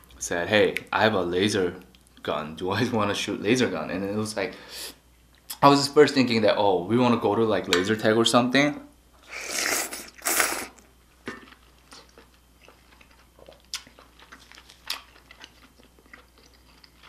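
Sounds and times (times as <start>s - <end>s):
loud soup slurps: 9.3s - 10.8s
quiet chewing with mouth clicks: 9.9s - 17.0s.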